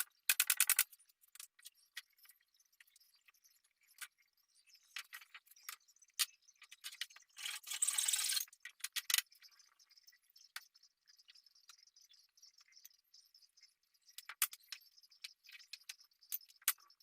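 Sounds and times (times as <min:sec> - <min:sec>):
tools clicking and rattling: 0:00.0 - 0:01.7.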